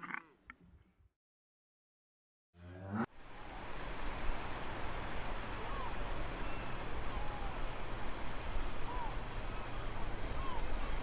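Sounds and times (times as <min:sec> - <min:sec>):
low hum: 0:02.6 - 0:03.1.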